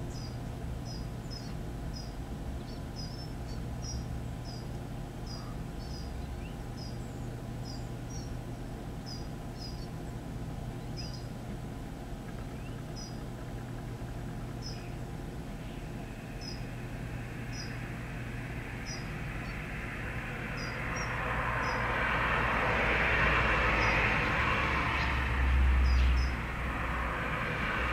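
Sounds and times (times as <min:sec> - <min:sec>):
small bird chirping: 0:00.0 - 0:11.4, 0:12.2 - 0:22.0, 0:25.8 - 0:26.4
steady low hum: 0:00.0 - 0:27.9.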